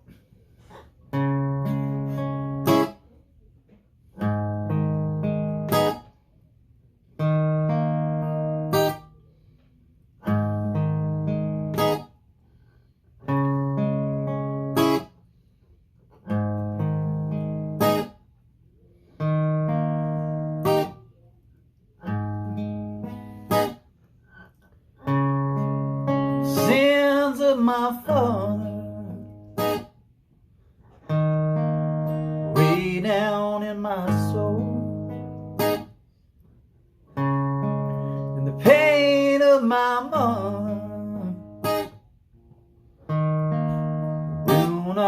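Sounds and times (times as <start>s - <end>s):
guitar playing repeating chord phrase: 1.1s - 3.0s, 4.2s - 6.1s, 7.2s - 9.1s, 10.2s - 12.1s, 13.2s - 15.1s, 16.3s - 18.2s, 19.2s - 21.0s, 22.0s - 23.8s, 25.0s - 29.9s, 31.0s - 36.0s, 37.1s - 42.0s, 43.0s - 45.0s.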